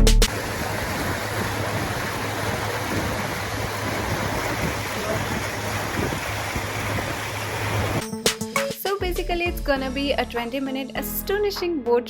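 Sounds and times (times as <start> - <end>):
boat engine hum: 0.0 - 8.0
water rushing: 0.2 - 8.0
wind: 0.2 - 8.0.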